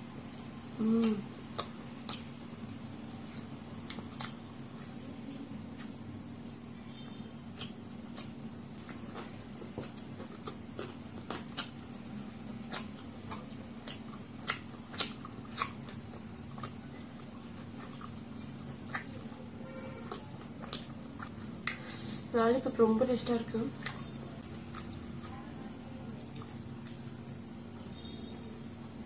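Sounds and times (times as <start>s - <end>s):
chicken being bitten and chewed: 1.0s - 2.3s, 3.2s - 4.4s, 7.5s - 19.4s
wet mouth clicks and smacks: 21.6s - 21.9s.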